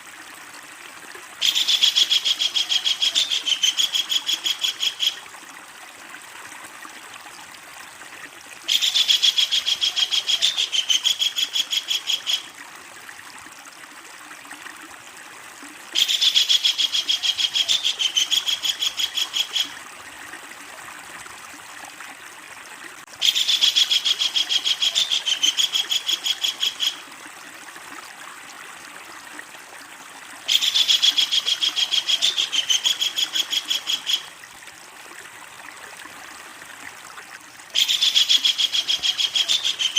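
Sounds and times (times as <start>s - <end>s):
kingfisher cackling call: 37.8s - 39.9s.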